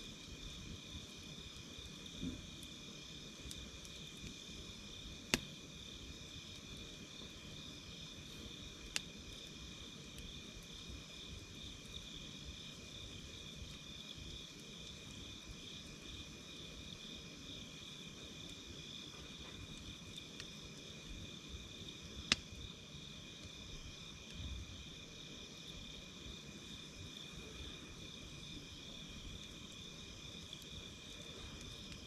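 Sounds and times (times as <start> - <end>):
campfire crackling: 0.0 - 32.0
crickets and insects trilling: 0.0 - 32.0
sharp fire pop: 5.3 - 5.5.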